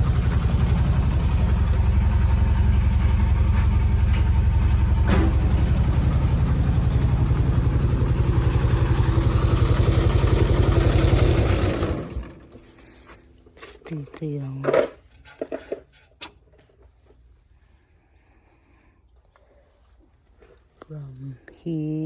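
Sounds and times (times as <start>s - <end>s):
combine harvester engine running: 0.0s - 13.0s.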